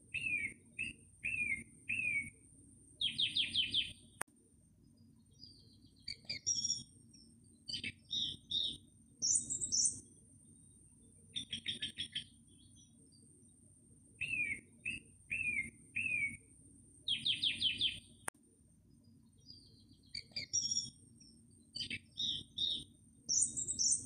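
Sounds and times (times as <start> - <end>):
small birds chirping: 0.0 - 24.0
thin steady high tone: 9.2 - 11.6, 22.4 - 24.0.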